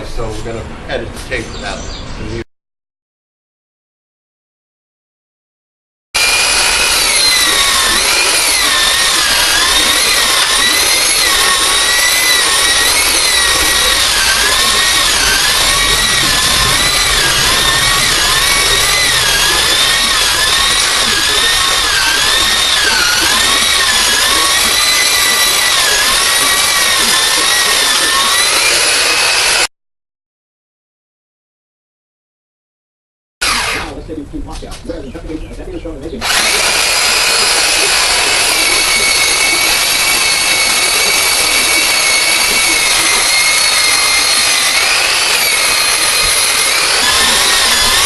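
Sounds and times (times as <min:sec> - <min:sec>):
electric sander whining: 0:06.2 - 0:29.7, 0:33.4 - 0:34.0, 0:36.2 - 0:48.0.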